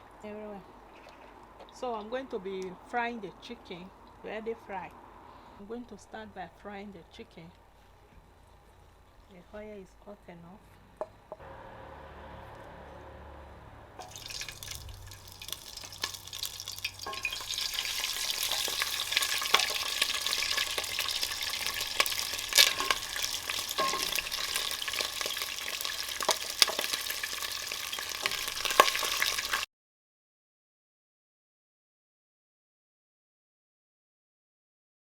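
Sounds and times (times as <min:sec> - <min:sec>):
chicken frying in oil: 0:14.0 - 0:29.7
oil popping and crackling: 0:14.0 - 0:29.7.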